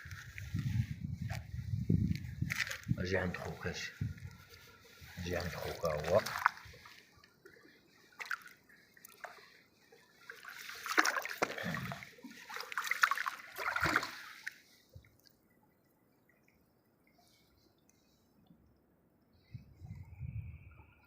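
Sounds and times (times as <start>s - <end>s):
water splashing and sloshing: 0.0s - 20.7s.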